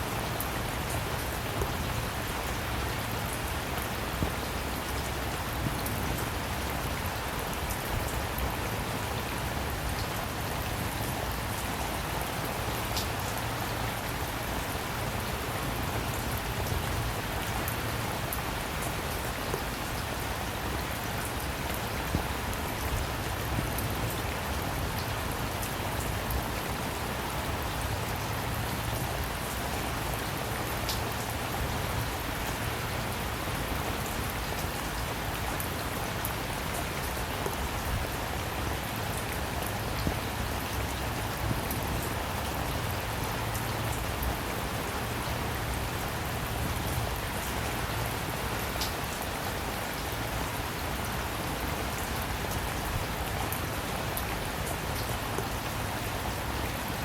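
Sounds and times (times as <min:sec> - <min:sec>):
rain falling on a surface: 0:00.0 - 0:57.0.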